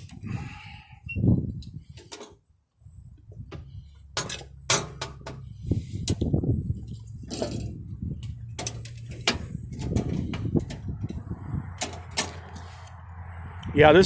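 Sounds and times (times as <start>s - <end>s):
metallic clicks and clunks: 3.5s - 12.7s.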